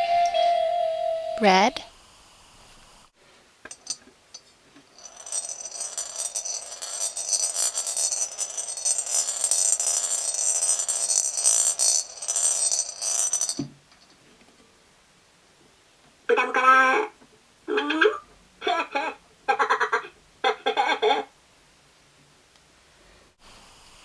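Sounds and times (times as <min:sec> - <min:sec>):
gumball rattling down plastic track: 0:05.0 - 0:13.7.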